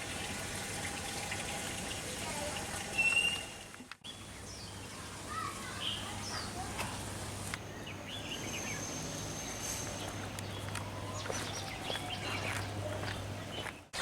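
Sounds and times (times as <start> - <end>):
bird chirps: 3.0 - 4.8, 7.7 - 14.0.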